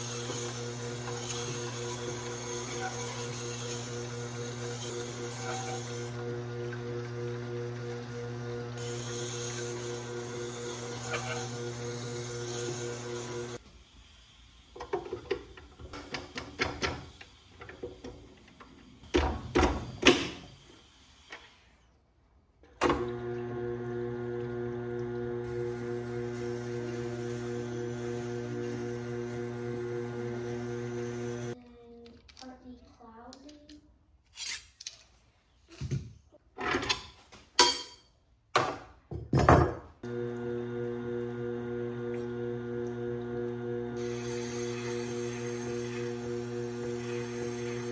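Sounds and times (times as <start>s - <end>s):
electric grinder motor humming: 0.0s - 13.6s, 23.0s - 31.6s, 40.0s - 47.9s.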